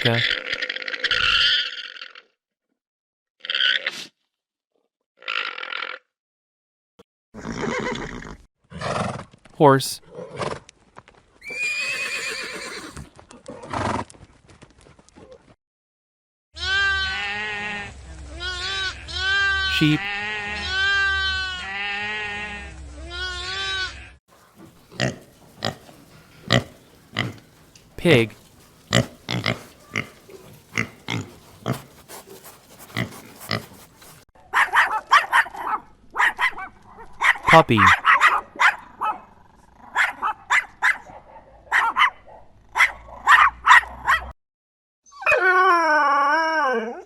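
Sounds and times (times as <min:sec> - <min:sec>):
sheep bleating: 0:16.6 - 0:34.2
pig grunting: 0:24.4 - 0:34.2
puppy yapping: 0:28.3 - 0:39.2, 0:42.8 - 0:44.3
puppy howling: 0:45.2 - 0:47.0.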